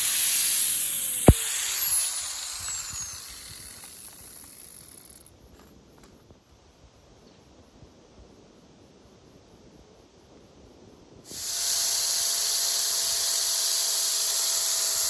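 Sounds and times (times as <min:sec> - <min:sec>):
power tool winding down: 0:00.0 - 0:05.3, 0:11.3 - 0:15.0.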